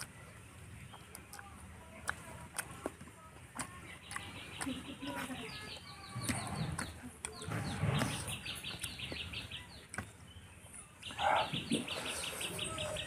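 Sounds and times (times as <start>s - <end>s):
small bird chirping: 3.7s - 13.0s.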